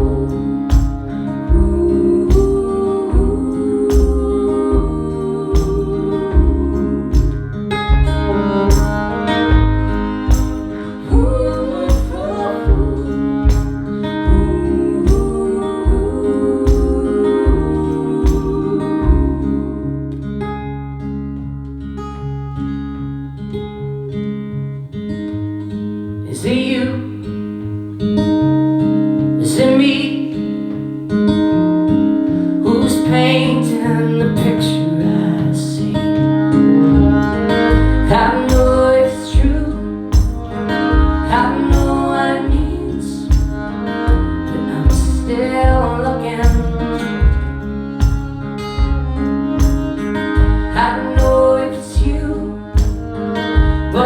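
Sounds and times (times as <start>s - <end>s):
rhythmic pulse: 0.0s - 19.6s, 36.7s - 54.0s
moving bass line: 0.0s - 21.0s, 36.7s - 54.0s
sustained chords: 0.0s - 21.0s, 36.5s - 54.0s.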